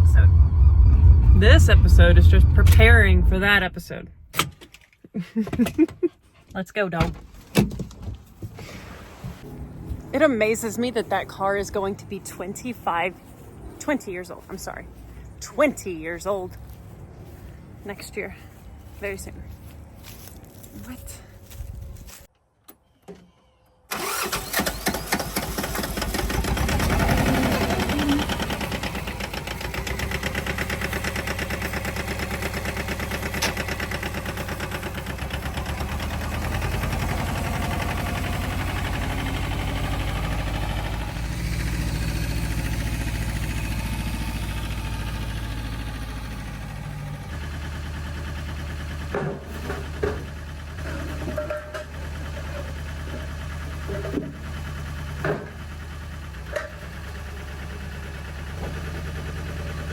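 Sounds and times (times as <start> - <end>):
engine starting and running: 0.0 - 6.0, 14.4 - 17.8, 23.9 - 59.9.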